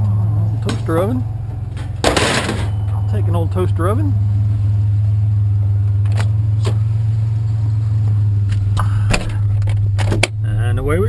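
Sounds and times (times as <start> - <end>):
truck engine idling: 0.0 - 11.0
sharp knocks and clunks: 1.7 - 3.0.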